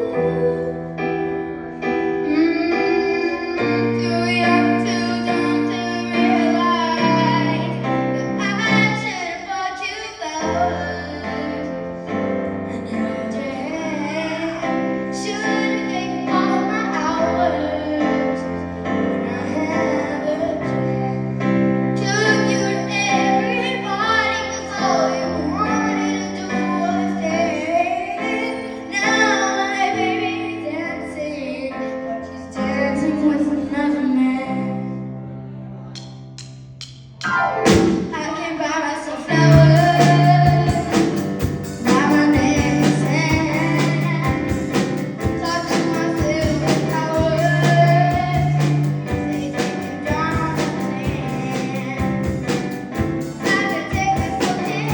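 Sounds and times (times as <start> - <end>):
piano chords: 0.0 - 54.9
woman singing pop ballad: 38.1 - 44.6.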